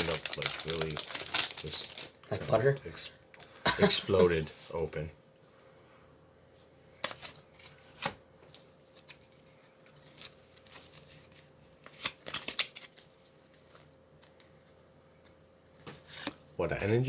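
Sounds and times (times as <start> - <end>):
trading cards rustling and clicking: 0.0 - 2.4, 7.0 - 16.4.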